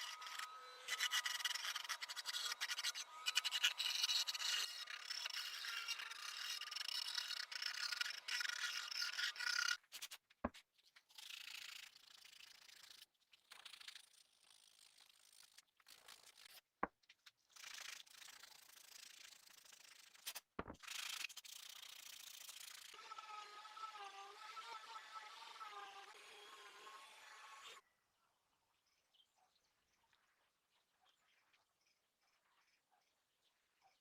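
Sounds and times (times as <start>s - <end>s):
scraping rust off metal: 0.0s - 9.8s.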